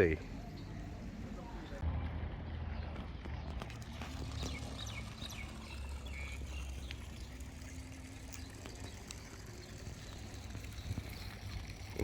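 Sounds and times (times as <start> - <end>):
wind rumble on microphone: 9.6 - 12.0.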